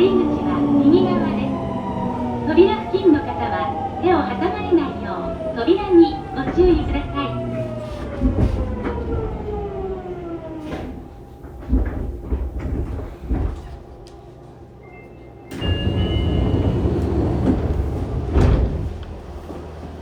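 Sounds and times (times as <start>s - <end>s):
platform ambience: 0.0s - 7.8s
train doors sliding open: 0.0s - 20.0s
train inverter whine: 0.0s - 20.0s
door chime: 14.8s - 17.8s.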